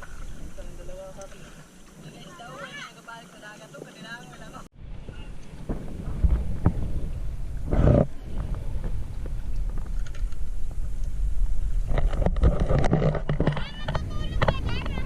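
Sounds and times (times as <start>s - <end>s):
wind buffeting microphone: 3.7s - 15.0s.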